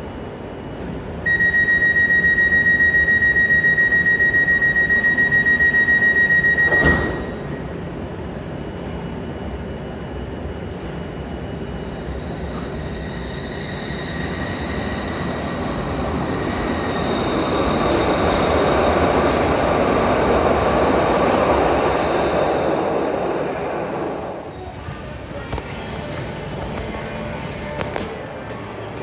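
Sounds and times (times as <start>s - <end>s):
faint high whines: 0.0s - 24.9s.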